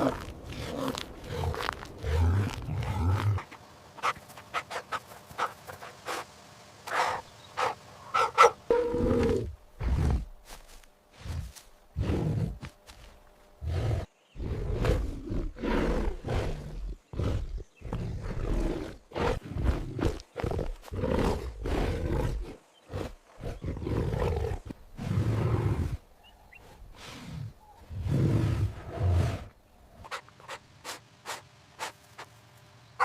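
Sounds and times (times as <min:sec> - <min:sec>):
big cat roaring and growling: 0:08.7 - 0:10.3, 0:13.6 - 0:26.0.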